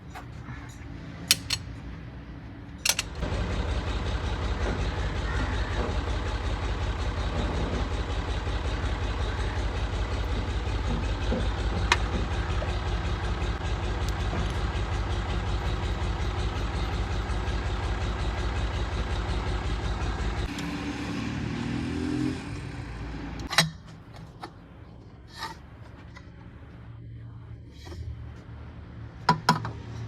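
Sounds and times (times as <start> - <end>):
tractor engine running: 1.3 - 20.8.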